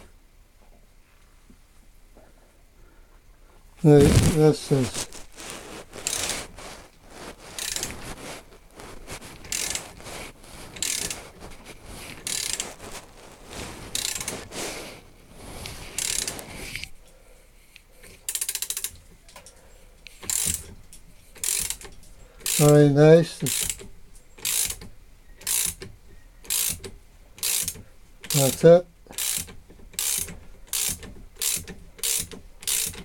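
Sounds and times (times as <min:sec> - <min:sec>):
metal rasping strokes: 0:04.0 - 0:16.9
ratchet clicks: 0:07.6 - 0:07.9, 0:09.4 - 0:10.0, 0:10.8 - 0:11.2, 0:12.2 - 0:12.7, 0:14.0 - 0:14.4, 0:16.0 - 0:16.5, 0:18.3 - 0:19.0, 0:20.0 - 0:20.8, 0:21.4 - 0:22.8, 0:23.4 - 0:33.0.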